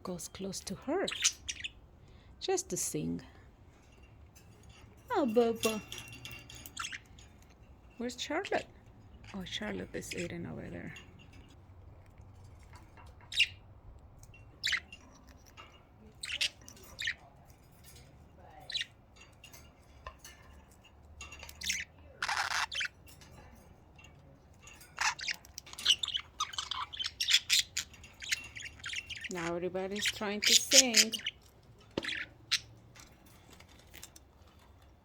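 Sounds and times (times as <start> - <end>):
budgerigars chirping: 0.4 - 1.8, 6.4 - 7.3, 13.2 - 13.7, 14.4 - 17.4, 18.6 - 19.0, 21.4 - 23.0, 24.6 - 32.8.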